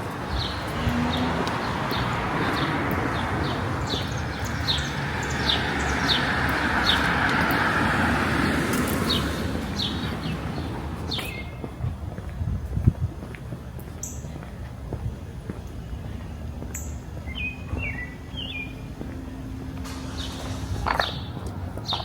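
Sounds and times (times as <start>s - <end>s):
vehicle driving past: 0.4s - 11.2s
bird chirping: 9.1s - 11.7s, 16.7s - 18.9s.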